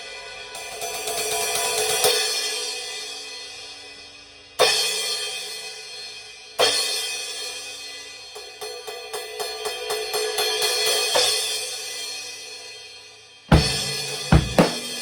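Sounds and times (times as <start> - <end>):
crash cymbal struck with stick: 13.5 - 15.0.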